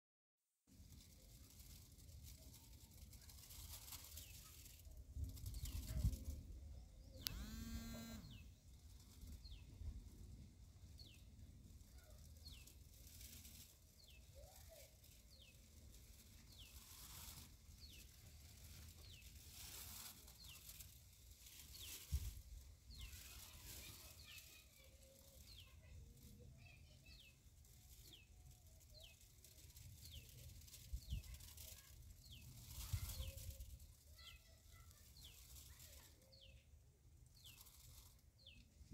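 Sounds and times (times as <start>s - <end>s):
small birds chirping: 1.0s - 10.1s, 10.7s - 38.9s
click: 7.2s - 7.4s.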